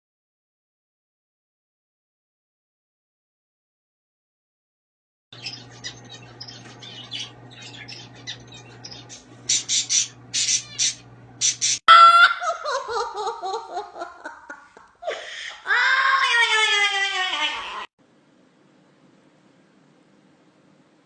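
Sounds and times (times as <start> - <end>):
birds chirping and squawking: 5.4 - 11.8
steady low hum: 5.4 - 11.8.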